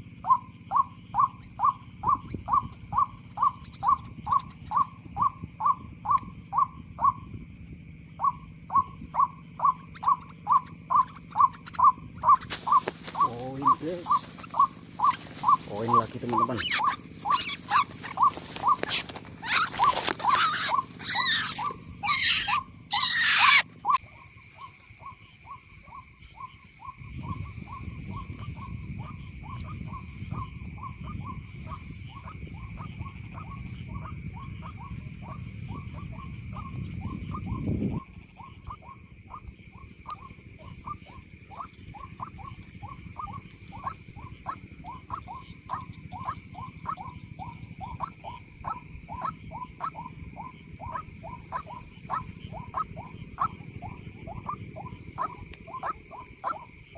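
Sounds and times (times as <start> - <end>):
insect trilling: 0.0 - 56.9
waterhen harsh squawks: 10.0 - 24.0
waterhen short clucking calls: 10.0 - 24.0.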